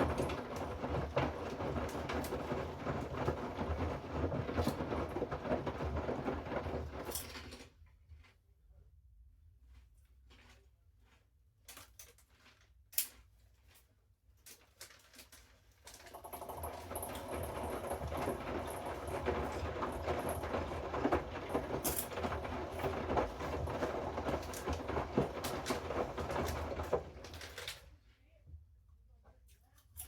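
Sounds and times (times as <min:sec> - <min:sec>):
washing machine motor hum: 0:00.0 - 0:07.2, 0:16.1 - 0:27.8
wet laundry slapping: 0:00.0 - 0:07.2, 0:16.2 - 0:27.8.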